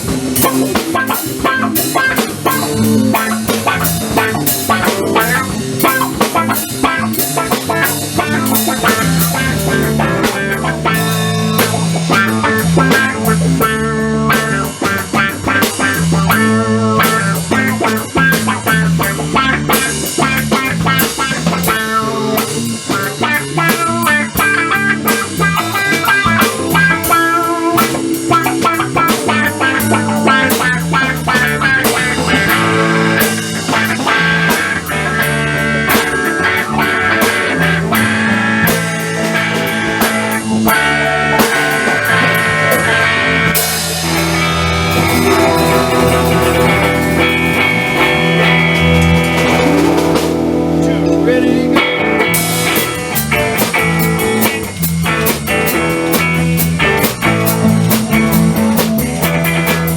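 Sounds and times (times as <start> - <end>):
instrumental rock music: 0.0 - 59.9.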